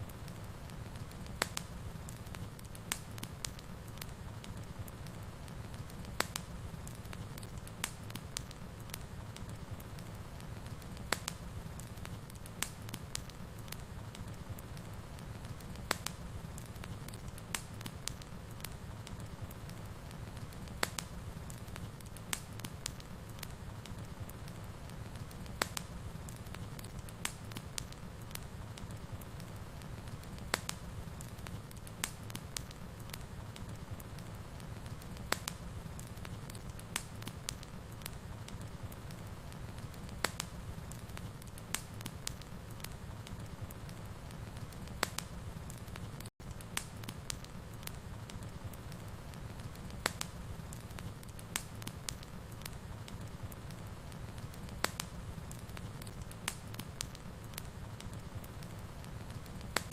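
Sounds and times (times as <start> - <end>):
low rumble of flames: 0.0 - 59.9
wood fire crackling and popping: 0.0 - 59.9.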